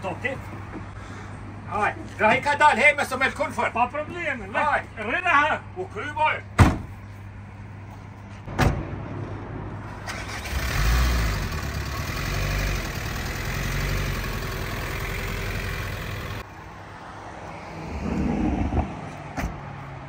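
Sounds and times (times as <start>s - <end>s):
vehicle engine starting and running: 8.6s - 16.4s.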